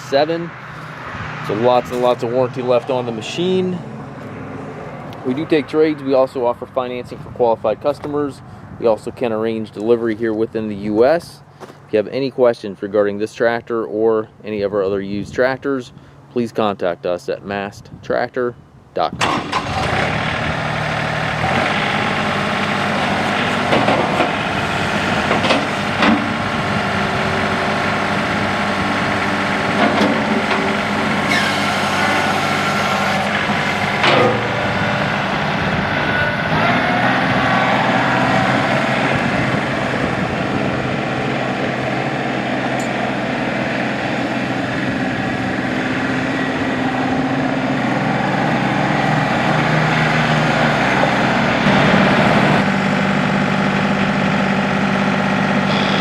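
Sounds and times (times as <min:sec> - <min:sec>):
tractor diesel engine running: 0:00.0 - 0:11.9, 0:19.2 - 0:56.0
knocks and clunks: 0:23.5 - 0:24.4, 0:25.2 - 0:26.4, 0:29.7 - 0:30.7, 0:33.9 - 0:34.6.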